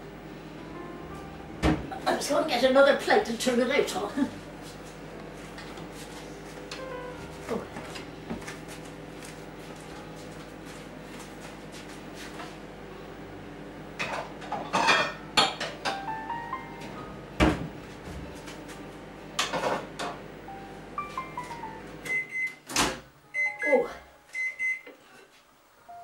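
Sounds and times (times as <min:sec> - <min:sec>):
steady hum: 0:00.0 - 0:26.0
dishes clattering: 0:14.0 - 0:16.0.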